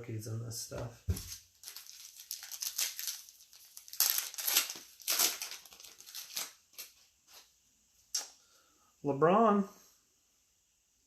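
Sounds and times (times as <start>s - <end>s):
trading cards rustling: 1.1s - 7.4s.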